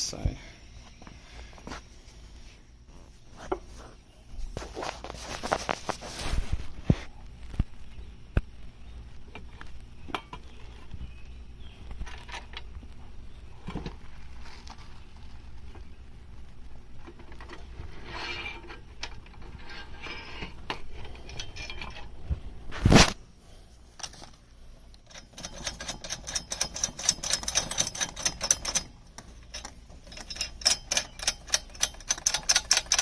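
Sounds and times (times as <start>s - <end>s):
metal parts clinking: 18.2s - 22.1s, 25.0s - 33.0s
metal parts rattling: 18.2s - 22.2s, 25.0s - 33.0s.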